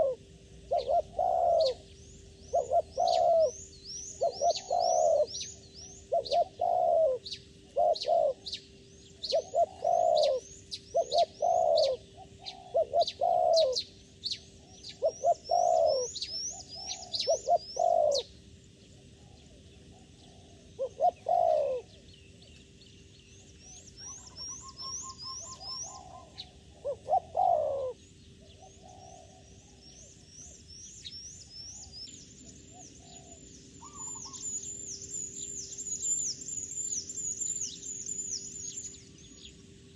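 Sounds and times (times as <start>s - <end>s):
doves cooing: 0.0s - 8.6s, 9.2s - 18.3s, 19.0s - 22.0s, 24.0s - 30.2s, 32.7s - 34.5s
small birds chirping: 0.0s - 39.9s.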